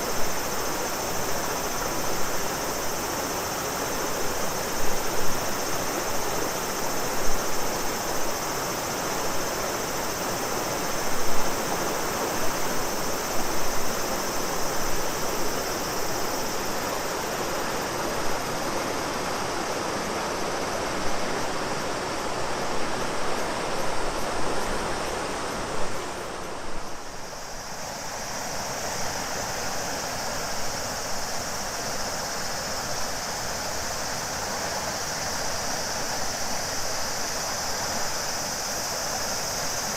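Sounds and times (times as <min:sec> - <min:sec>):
cicadas droning: 0:00.0 - 0:39.9
river water flowing and splashing: 0:00.0 - 0:39.9.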